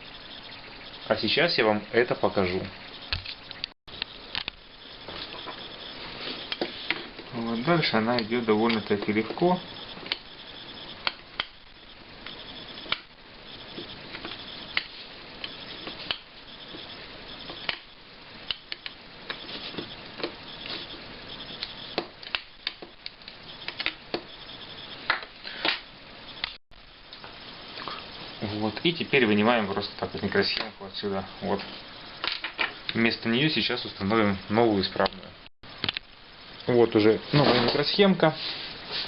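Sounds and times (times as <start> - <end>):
faint steady hiss: 0.0 - 39.0
tools clicking on circuit board: 18.5 - 19.4.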